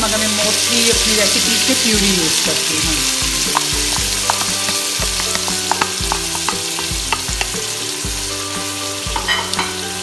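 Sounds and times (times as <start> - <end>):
food sizzling in a pot: 0.0 - 10.0
wooden spoon knocking on pot: 3.4 - 7.7.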